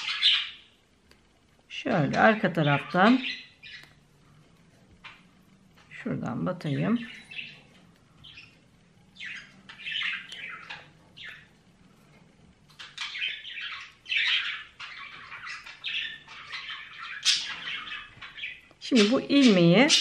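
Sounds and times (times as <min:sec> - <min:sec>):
small bird chirping and squawking: 0:00.0 - 0:00.8, 0:02.2 - 0:04.0, 0:07.0 - 0:11.6, 0:12.7 - 0:20.0.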